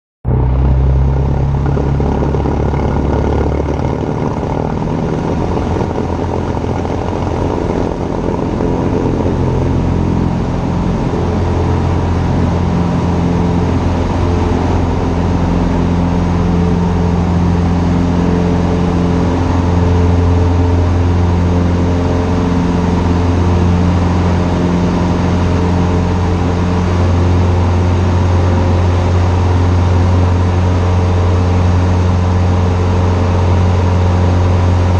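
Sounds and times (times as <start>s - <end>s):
light aircraft piston engine: 0.3s - 34.9s.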